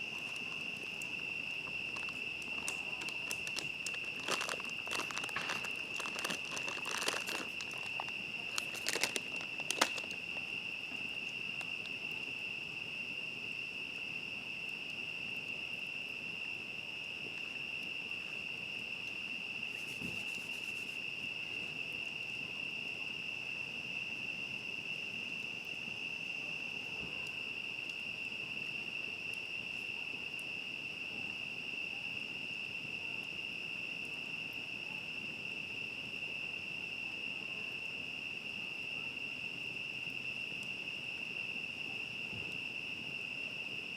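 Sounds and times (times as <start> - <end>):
crickets trilling: 0.0 - 43.9
sharp clicks and crackles: 1.9 - 10.5.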